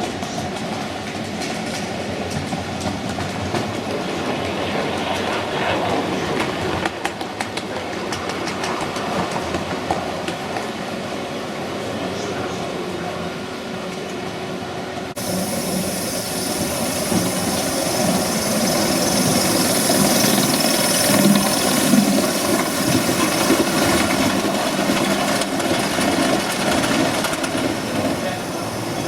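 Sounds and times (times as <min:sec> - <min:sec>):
model steam locomotive hissing: 0:15.2 - 0:29.0.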